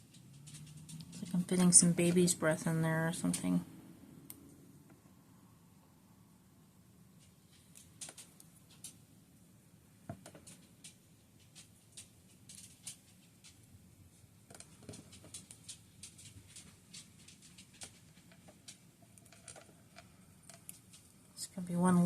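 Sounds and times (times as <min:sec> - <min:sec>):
flower sprigs rustling and ticking: 0:00.0 - 0:03.6, 0:07.1 - 0:09.2, 0:10.2 - 0:22.0.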